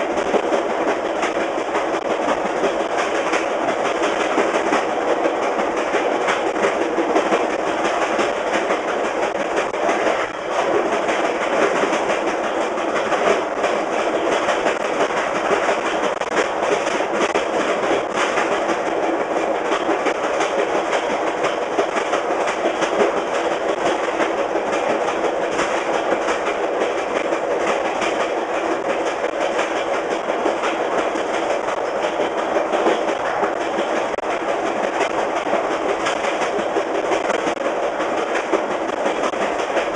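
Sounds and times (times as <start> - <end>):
train rolling rumble: 0.0 - 39.9
train wheels clickety-clack: 0.0 - 39.9.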